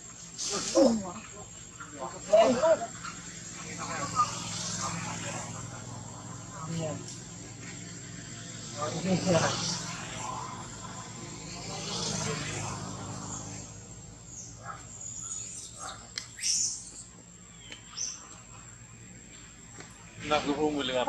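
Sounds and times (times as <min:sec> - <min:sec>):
high bird chirps: 0:13.2 - 0:18.4.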